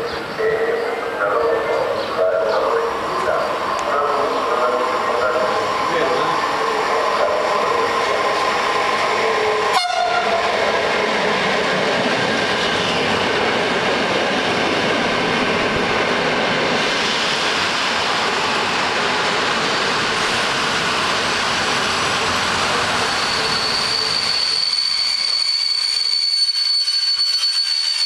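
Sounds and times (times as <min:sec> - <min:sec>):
train wheels rushing: 0:01.7 - 0:28.0
high brake squeal: 0:22.7 - 0:28.0.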